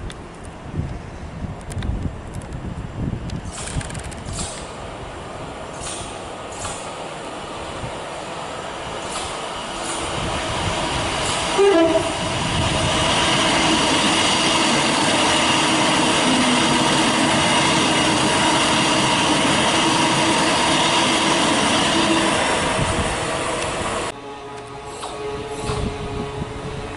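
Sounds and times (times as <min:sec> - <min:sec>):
train wheels rushing on rail: 0:01.5 - 0:26.9
train horn blast: 0:11.2 - 0:12.3, 0:13.3 - 0:26.9.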